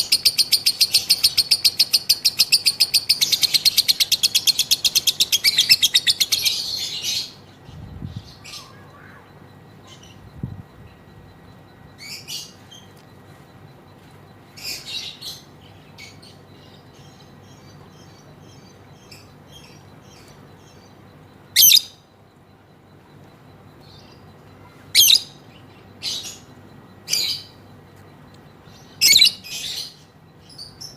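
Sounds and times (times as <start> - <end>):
lovebird high-pitched calls: 0.0 - 13.4, 14.5 - 22.1, 23.7 - 27.7, 28.6 - 30.9
faint bird twittering: 0.0 - 30.9.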